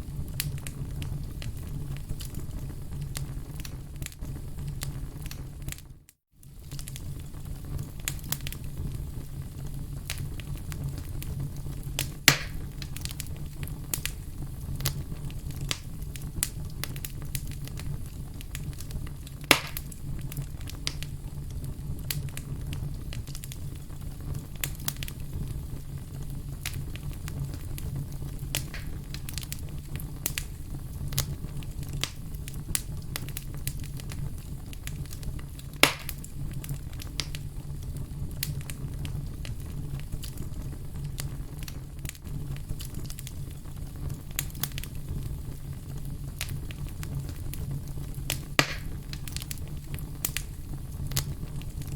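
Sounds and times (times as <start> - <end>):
fire crackling: 0.0 - 51.9
sharp fire pops: 0.0 - 51.9.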